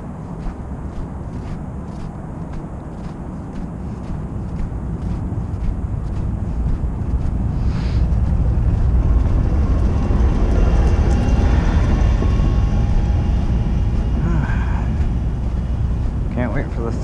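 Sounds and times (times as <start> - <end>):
heavy vehicle rumble: 3.8 - 17.0.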